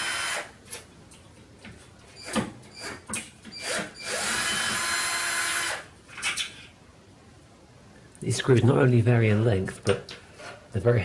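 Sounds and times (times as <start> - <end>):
cordless drill running: 0.0 - 0.5, 3.6 - 5.9.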